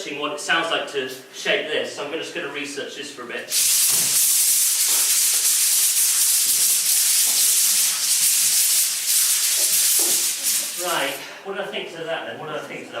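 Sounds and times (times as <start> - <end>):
loud steady hiss: 3.5 - 11.3.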